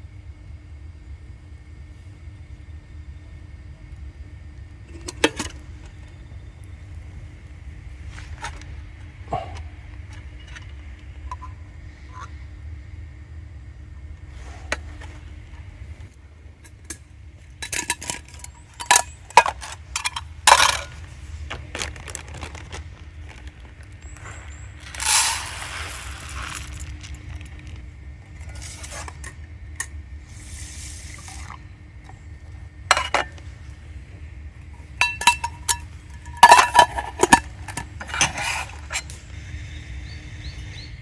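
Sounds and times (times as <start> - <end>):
short hissing rush: 24.0 - 27.3, 30.2 - 31.6
metal cookware clinking: 32.9 - 33.4, 34.8 - 39.2.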